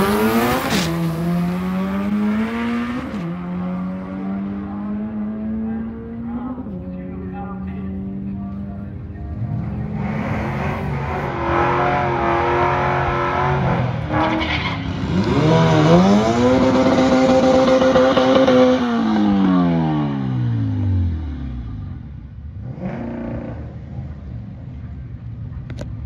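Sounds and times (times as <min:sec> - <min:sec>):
engine revving hard: 0:00.0 - 0:06.4, 0:09.8 - 0:21.2.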